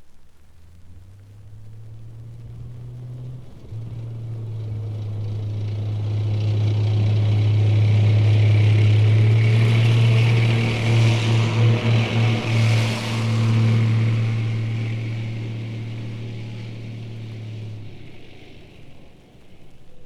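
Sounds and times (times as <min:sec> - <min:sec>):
tank engine drone: 0:00.7 - 0:20.0.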